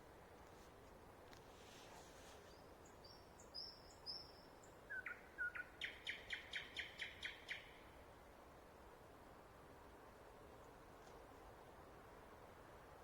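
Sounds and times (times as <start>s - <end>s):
nightingale singing faintly: 2.4s - 7.8s.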